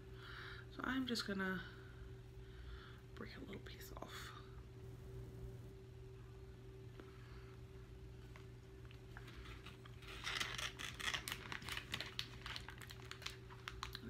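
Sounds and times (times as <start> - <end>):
low steady hum: 0.0 - 14.0
crackling and rustling of cake: 7.0 - 14.0.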